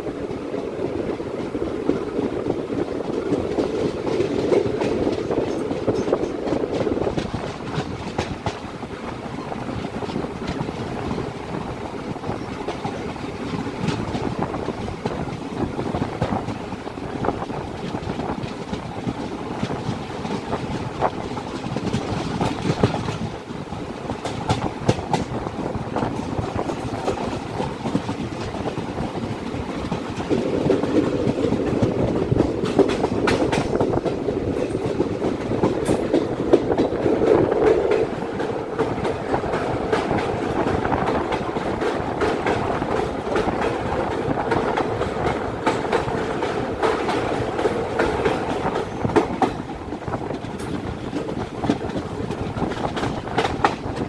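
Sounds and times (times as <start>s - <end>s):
train rumbling on track: 0.0s - 54.0s
wheels clattering over rail joints: 1.4s - 11.4s.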